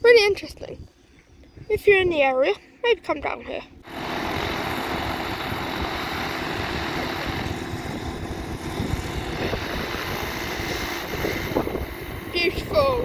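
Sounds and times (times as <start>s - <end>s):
wind buffeting microphone: 0.0s - 13.0s
propeller aircraft engine running: 3.7s - 13.0s.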